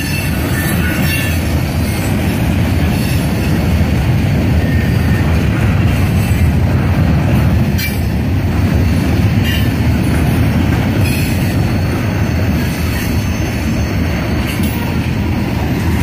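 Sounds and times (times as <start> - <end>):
wheel squeals: 0.0 - 2.1, 10.5 - 16.0
steel wheels rumbling on rail: 0.0 - 16.0.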